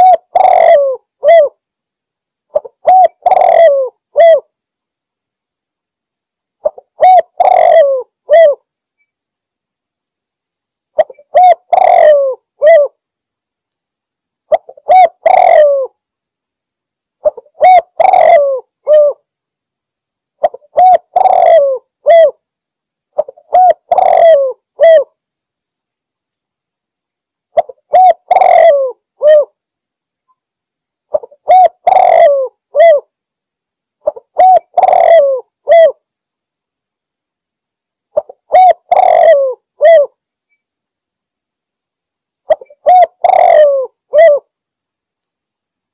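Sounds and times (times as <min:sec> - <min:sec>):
dove cooing call: 0:00.0 - 0:01.6, 0:02.5 - 0:04.5, 0:06.6 - 0:08.6, 0:11.0 - 0:13.0, 0:14.5 - 0:16.0, 0:17.2 - 0:19.2, 0:20.4 - 0:22.4, 0:23.2 - 0:25.2, 0:27.6 - 0:29.6, 0:31.1 - 0:33.1, 0:34.0 - 0:36.0, 0:38.2 - 0:40.2, 0:42.5 - 0:44.5.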